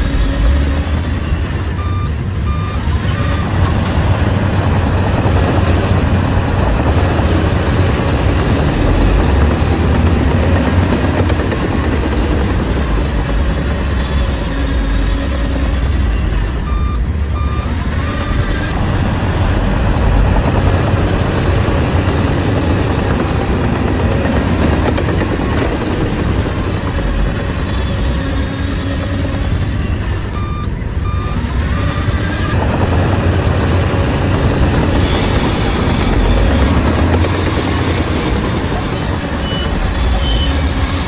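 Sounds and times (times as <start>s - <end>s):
bulldozer diesel engine running: 0.0s - 41.0s
reversing alarm beeps: 0.1s - 4.2s, 14.0s - 18.8s, 29.3s - 32.4s.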